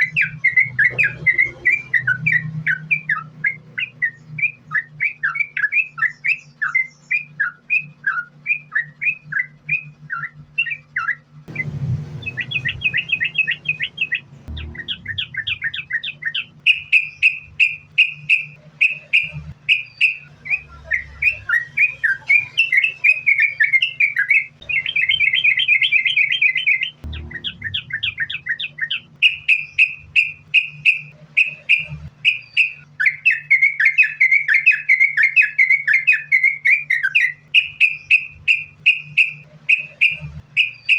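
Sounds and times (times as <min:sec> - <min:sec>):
low hum: 0:00.0 - 0:06.7, 0:07.4 - 0:33.3
bird chirping and trilling: 0:00.0 - 0:40.9.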